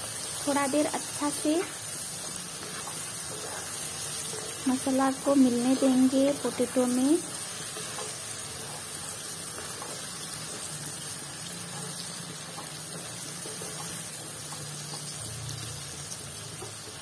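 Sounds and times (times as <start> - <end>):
food sizzling in a pan: 0.0 - 17.0
wooden spatula scraping and tapping: 2.2 - 4.6, 7.7 - 10.7.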